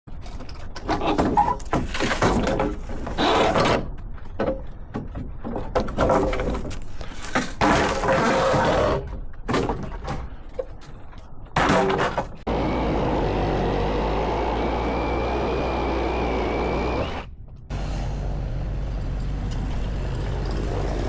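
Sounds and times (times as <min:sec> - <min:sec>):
demolition crashes and clatter: 0:00.1 - 0:12.5, 0:18.8 - 0:21.0.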